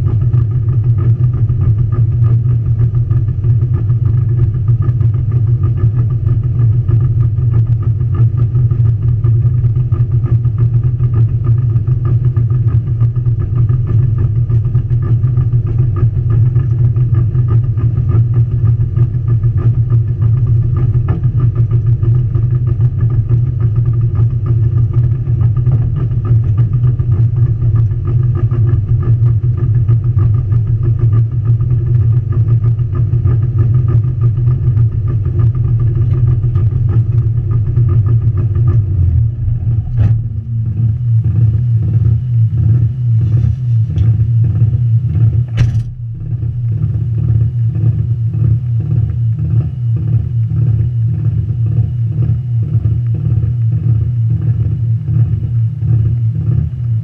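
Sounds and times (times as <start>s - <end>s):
car engine idling: 0.0s - 57.0s
sharp click: 45.5s - 46.0s.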